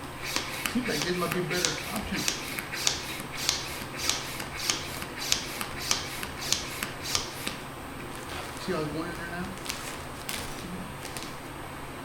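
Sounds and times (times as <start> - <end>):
hand pump hissing air: 0.0 - 11.5.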